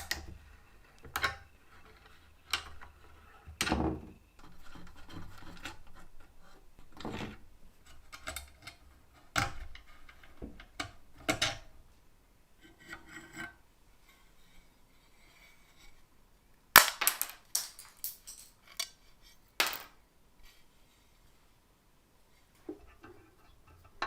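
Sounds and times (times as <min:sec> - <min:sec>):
metal tools clacking and knocking: 0:17.5 - 0:18.9.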